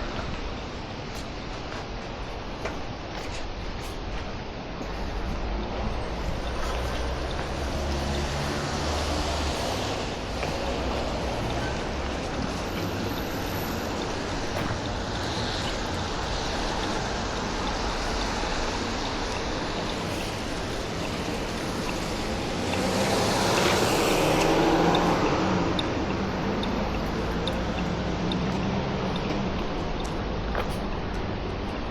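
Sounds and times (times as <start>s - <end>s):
street traffic hum: 0.0s - 31.9s
vehicle passing close by: 6.0s - 16.0s, 20.9s - 29.1s.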